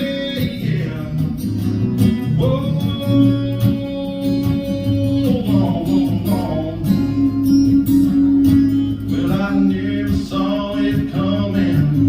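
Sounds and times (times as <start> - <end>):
man singing: 0.0 - 7.5, 8.7 - 12.0
strummed guitar: 0.0 - 12.0.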